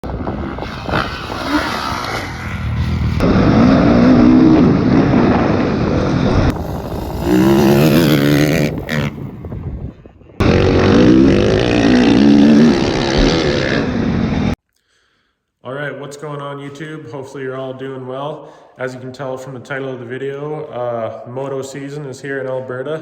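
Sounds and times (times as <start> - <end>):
dirt bike engines revving: 0.0 - 9.5, 10.4 - 14.6.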